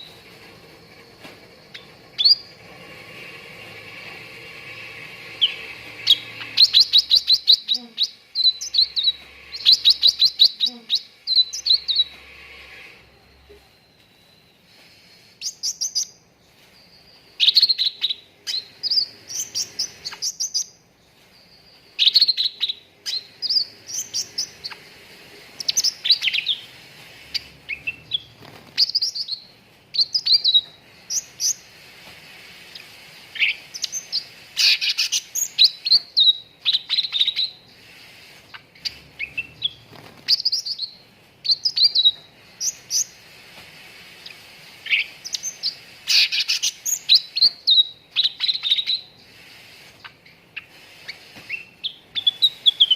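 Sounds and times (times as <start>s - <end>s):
bird chirping and whistling: 1.2s - 2.5s, 5.4s - 12.2s, 17.4s - 20.8s, 21.7s - 24.8s, 25.6s - 26.7s, 27.3s - 31.7s, 33.3s - 37.6s, 38.5s - 43.2s, 44.8s - 49.2s, 50.0s - 52.9s.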